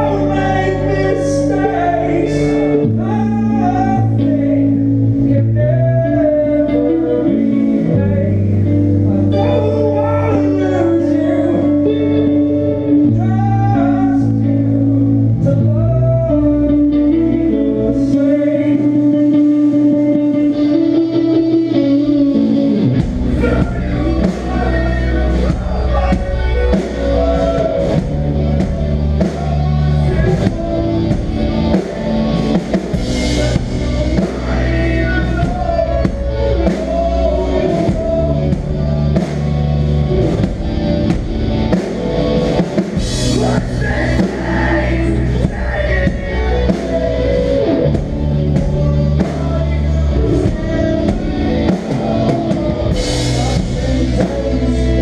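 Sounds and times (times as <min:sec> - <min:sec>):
heavy drums and bass: 0:00.0 - 0:06.6, 0:21.5 - 0:55.0
hardcore band playing live: 0:00.0 - 0:55.0
sustained electric guitar: 0:00.0 - 0:55.0.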